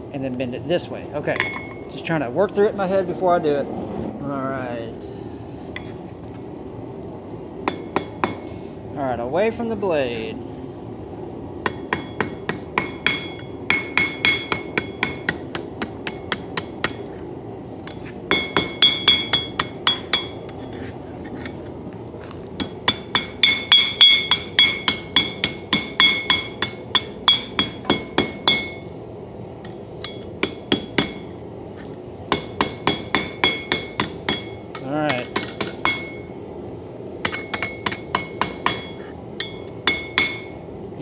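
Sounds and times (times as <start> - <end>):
hammer striking steel on anvil: 1.3 - 2.0, 7.7 - 8.5, 11.7 - 17.2, 17.8 - 20.8, 22.6 - 28.9, 29.6 - 31.4, 32.3 - 36.4, 37.2 - 40.7.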